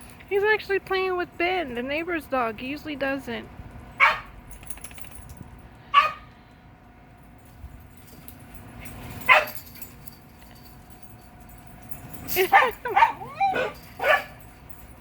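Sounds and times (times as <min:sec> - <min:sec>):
dog barking: 0:04.0 - 0:04.3, 0:05.9 - 0:06.3, 0:09.3 - 0:09.6, 0:12.5 - 0:14.4.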